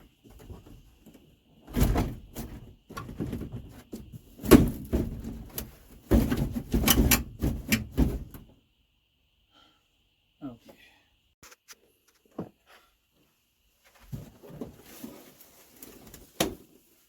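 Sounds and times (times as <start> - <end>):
panels knocking and scraping: 1.7 - 8.5.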